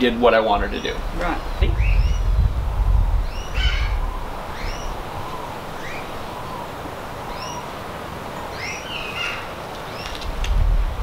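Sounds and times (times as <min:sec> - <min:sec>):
low rumble: 0:00.0 - 0:05.8, 0:10.3 - 0:11.0
birds chirping: 0:00.0 - 0:10.4.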